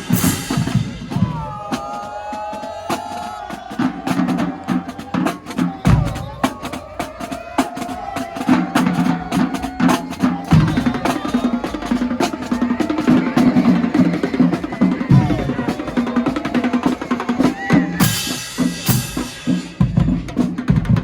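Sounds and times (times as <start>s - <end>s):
snare drum rolls: 0.0s - 21.0s
pitched bass drums: 8.0s - 21.0s.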